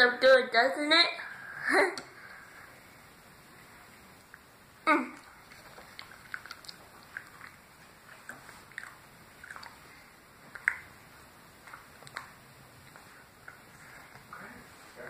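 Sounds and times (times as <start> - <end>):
person chewing with wet lip smacks: 5.2 - 11.0, 11.6 - 14.3.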